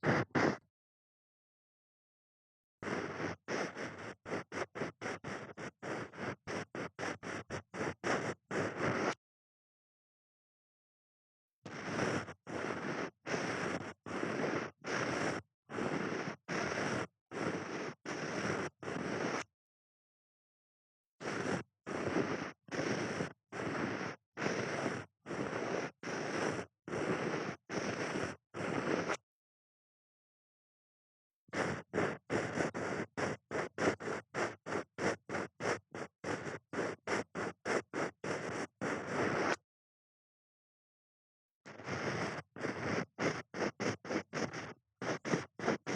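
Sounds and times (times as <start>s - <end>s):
rubbing and scraping on microphone: 0.0s - 0.6s, 2.8s - 9.2s, 11.7s - 19.5s, 21.2s - 29.2s, 31.5s - 39.6s, 41.7s - 45.9s.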